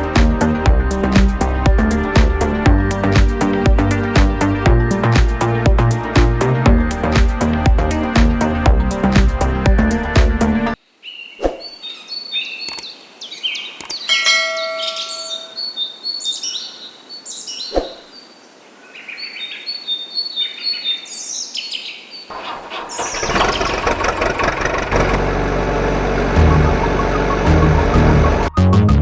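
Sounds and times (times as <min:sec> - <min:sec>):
birds chirping: 0:00.0 - 0:24.1
sharp clicks: 0:12.7 - 0:12.9, 0:13.8 - 0:14.0.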